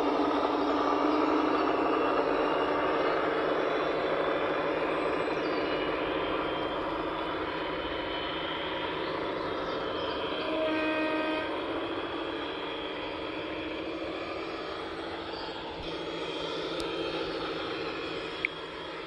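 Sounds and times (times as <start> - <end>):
large vehicle engine running: 0.0 - 19.0
horn-like tone: 10.4 - 11.7.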